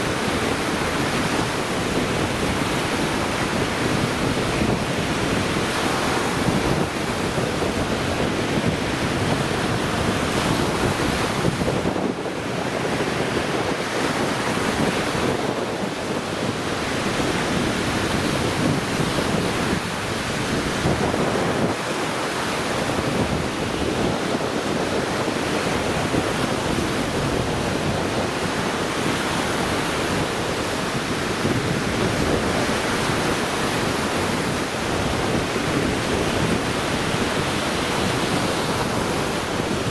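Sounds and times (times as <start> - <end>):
waves washing onto shore: 0.0 - 39.9
wind buffeting microphone: 0.0 - 39.9.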